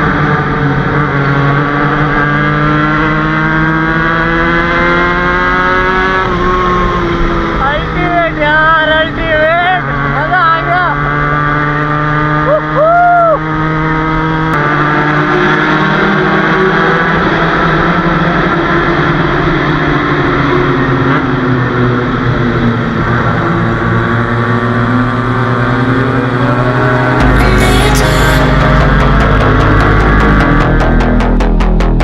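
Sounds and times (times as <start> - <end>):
motorcycle engine running: 0.0 - 32.0
music with heavy beat: 27.2 - 32.0.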